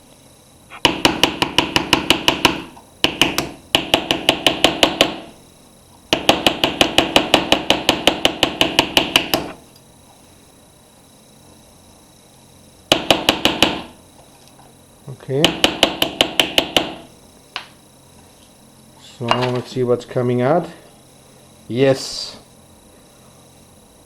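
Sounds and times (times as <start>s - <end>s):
hammer tapping on metal: 0.8s - 5.3s, 6.1s - 9.6s, 12.9s - 13.9s, 15.4s - 17.1s.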